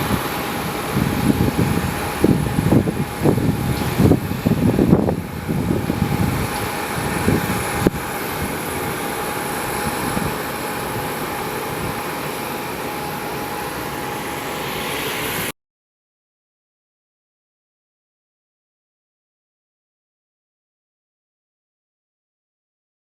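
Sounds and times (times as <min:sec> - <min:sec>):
aircraft engines roaring: 0:00.0 - 0:15.5.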